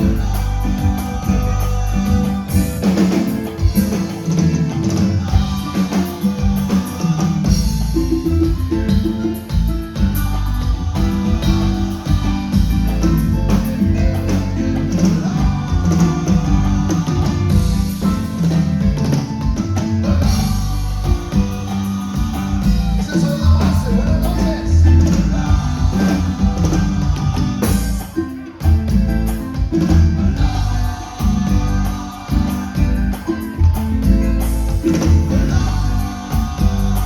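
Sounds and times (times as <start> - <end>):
person singing: 0.0 - 28.7
live band playing: 0.0 - 37.0.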